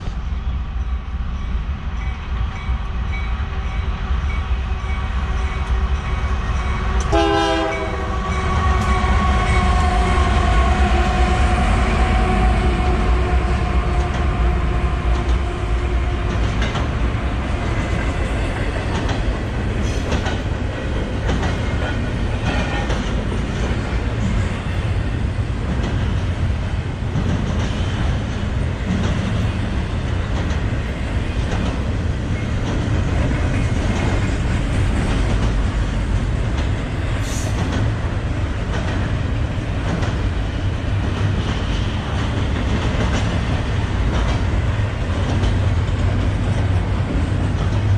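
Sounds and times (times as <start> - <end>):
freight train rumbling: 0.0 - 47.9.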